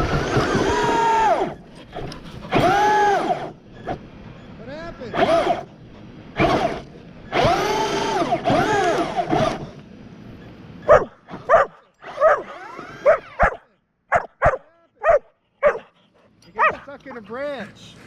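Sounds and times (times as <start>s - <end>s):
toy truck electric motor whining: 0.0s - 5.7s, 6.3s - 9.8s, 11.3s - 13.5s
dog barking: 10.8s - 16.0s, 16.6s - 17.2s.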